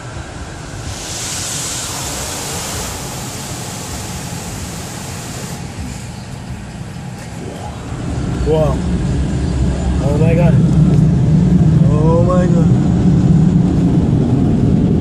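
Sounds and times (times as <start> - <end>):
steady low rumble: 0.0 - 15.0
water spray hissing on car: 0.3 - 7.2.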